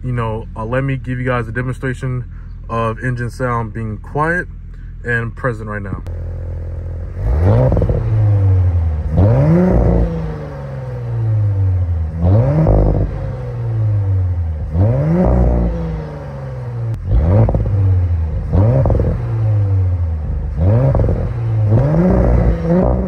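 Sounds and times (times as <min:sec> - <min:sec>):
car engine revving: 0:06.0 - 0:23.0.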